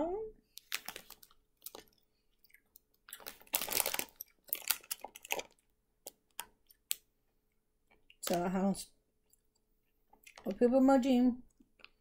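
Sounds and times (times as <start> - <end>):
gummy candy chewing: 0.5 - 8.5, 9.3 - 10.6, 11.5 - 12.0
plastic bag crinkling: 0.6 - 2.0, 2.7 - 6.2.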